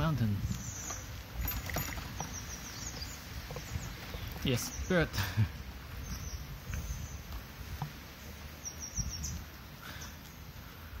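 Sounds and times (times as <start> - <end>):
small bird chirping: 0.4 - 5.1, 5.8 - 10.6.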